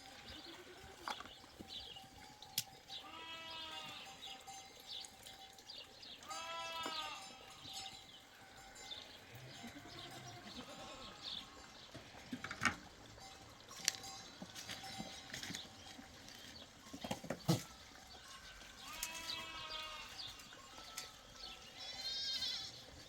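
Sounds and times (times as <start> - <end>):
livestock bleating: 0.1 - 1.2, 3.0 - 4.5, 6.2 - 12.3, 17.5 - 23.0.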